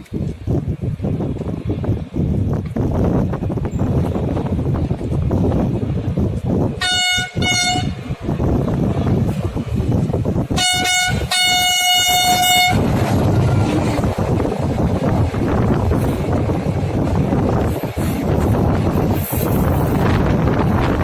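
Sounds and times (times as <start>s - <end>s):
steady low rumble: 0.0s - 21.0s
train horn blasts: 6.8s - 8.0s, 10.5s - 13.8s.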